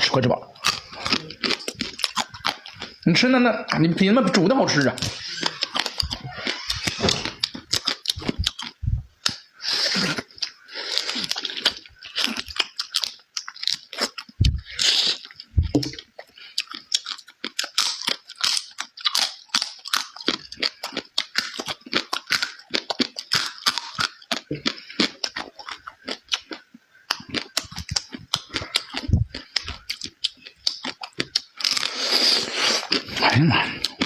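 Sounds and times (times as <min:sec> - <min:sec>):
chewing food: 0:00.6 - 0:03.1, 0:04.9 - 0:34.0
dull low thumps: 0:08.2 - 0:09.2, 0:14.4 - 0:14.7, 0:15.5 - 0:16.0, 0:29.1 - 0:29.4.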